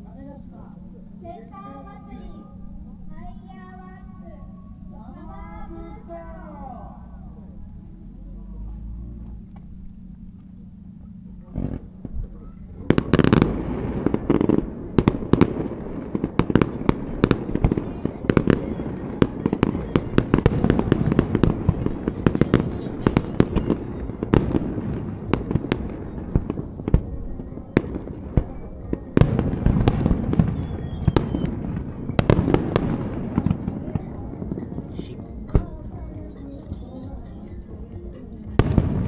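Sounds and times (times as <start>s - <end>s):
continuous rumble: 0.0s - 39.0s
fireworks bangs: 8.8s - 39.0s
heavy fireworks booms: 9.2s - 39.0s.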